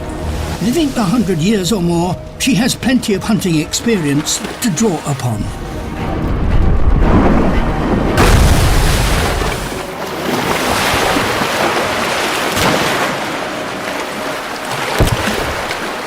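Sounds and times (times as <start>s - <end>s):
sea water washing and splashing: 0.0s - 1.9s, 3.3s - 16.0s
heavy low rumble: 5.3s - 9.9s.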